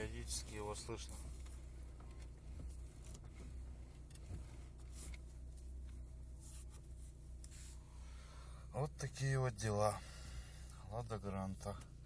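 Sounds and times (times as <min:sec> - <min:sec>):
power steering knocks and crunches: 0:00.0 - 0:06.1
steady low hum: 0:00.0 - 0:12.0.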